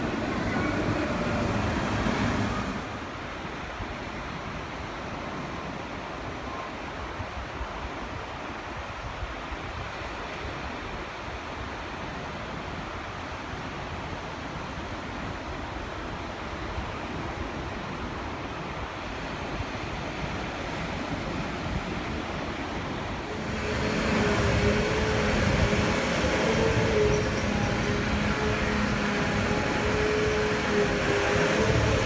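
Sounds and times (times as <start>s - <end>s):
ocean surf: 0.0s - 4.2s, 20.6s - 32.0s
wind on microphone: 23.1s - 32.0s.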